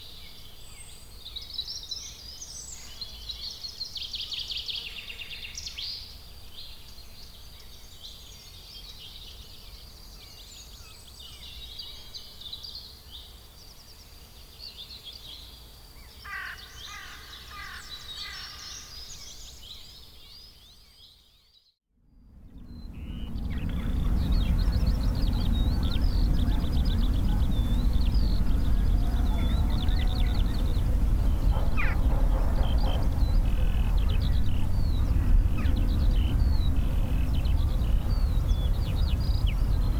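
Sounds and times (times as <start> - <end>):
low background rumble: 22.2 - 39.9
birds chirping: 22.5 - 39.9.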